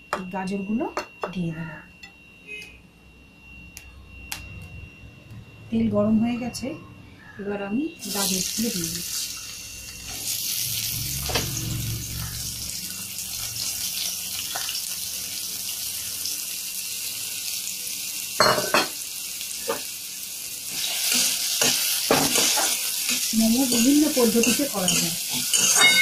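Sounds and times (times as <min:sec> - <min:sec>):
vegetables sizzling in hot oil: 0:08.0 - 0:26.0.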